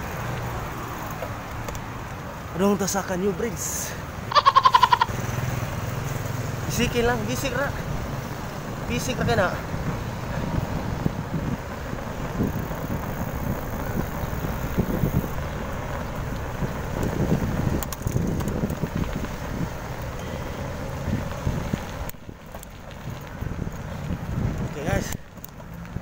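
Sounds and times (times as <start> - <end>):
road noise: 0.0 - 26.0
wind buffeting microphone: 7.8 - 26.0.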